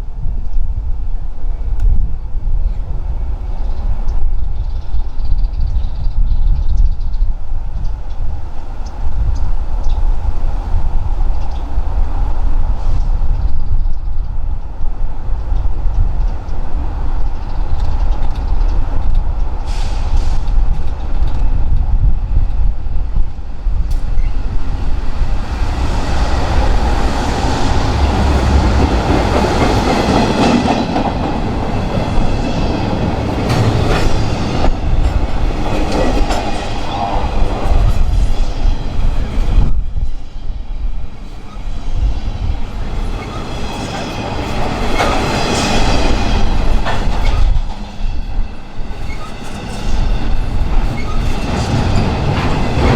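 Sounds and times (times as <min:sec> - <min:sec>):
train wheels clicking over rail joints: 0:25.4 - 0:38.6
high wheel squeal: 0:48.2 - 0:52.2.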